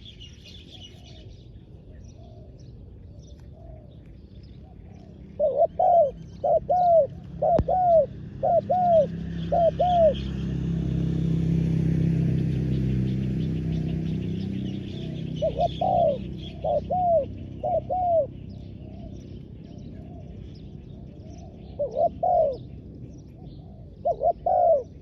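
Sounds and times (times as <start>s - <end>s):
small birds chirping: 0.0s - 25.0s
dove cooing: 4.6s - 10.7s, 13.6s - 25.0s.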